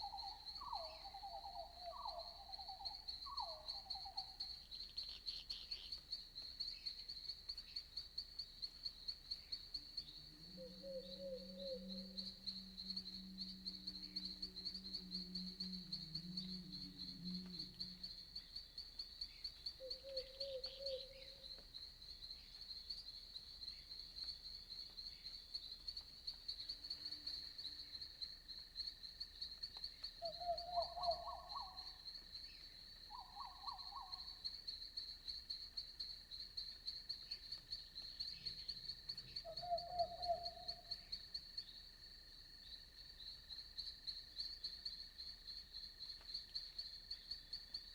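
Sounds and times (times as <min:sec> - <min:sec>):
crickets chirping: 0:00.0 - 0:47.9
low-pitched croak: 0:10.4 - 0:18.4.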